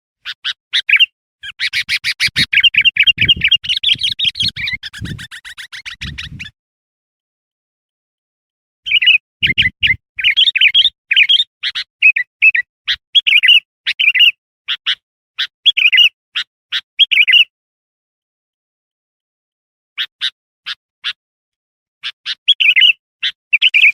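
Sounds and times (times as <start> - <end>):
bulbul chirping: 0.8 - 6.5, 8.9 - 13.5.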